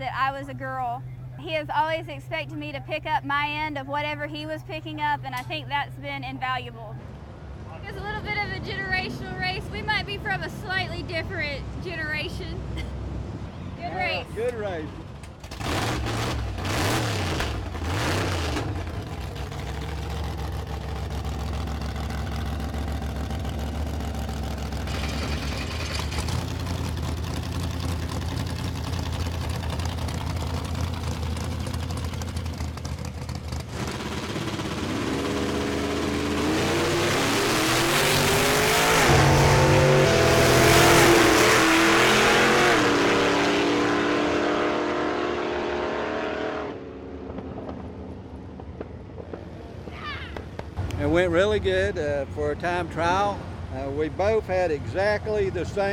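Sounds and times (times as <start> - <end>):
drag car engines revving: 14.4 - 48.7.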